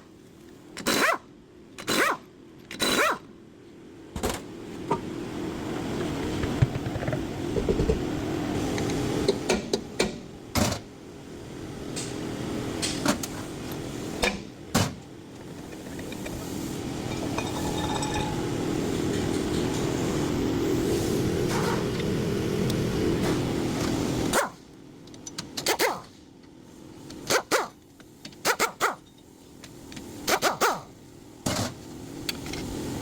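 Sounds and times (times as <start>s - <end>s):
wheel bearing droning hum: 15.3s - 24.3s.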